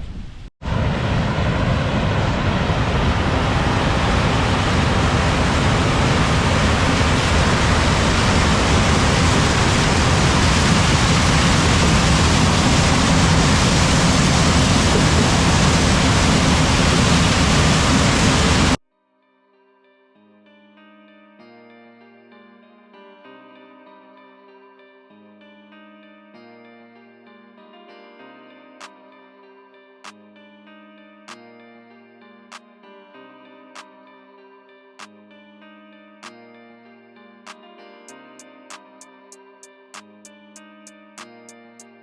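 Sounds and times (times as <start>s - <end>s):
combine harvester running: 0.7s - 18.8s.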